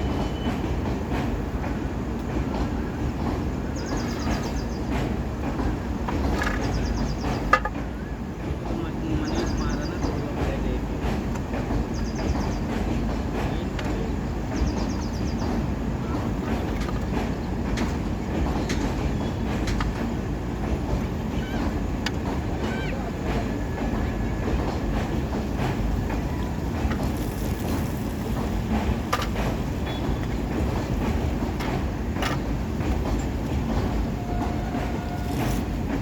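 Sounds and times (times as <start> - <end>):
train clicks and knocks: 0.0 - 36.0
train rumbling: 0.0 - 36.0.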